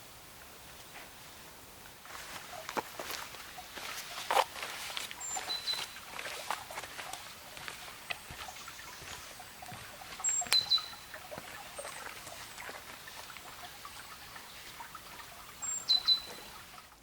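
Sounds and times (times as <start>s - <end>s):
footsteps on forest floor: 1.9s - 15.3s
small bird calling: 2.4s - 16.8s.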